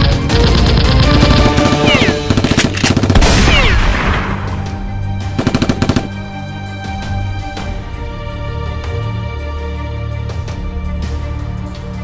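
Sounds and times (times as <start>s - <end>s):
action background music: 0.0s - 12.0s
automatic gunfire bursts: 0.5s - 3.8s.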